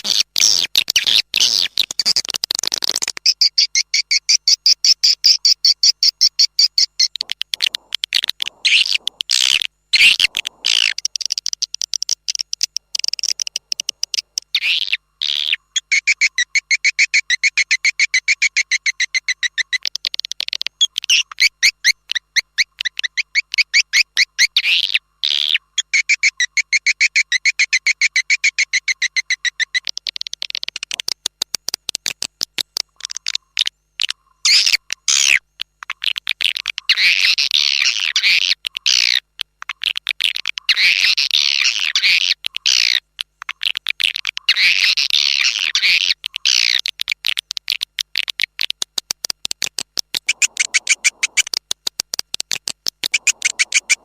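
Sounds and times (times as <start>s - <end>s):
swiftlet twittering: 50.2s - 51.5s, 53.1s - 54.0s.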